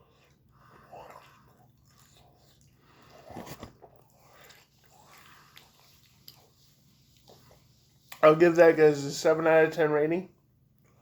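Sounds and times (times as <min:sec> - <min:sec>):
person chewing: 0:00.0 - 0:08.2.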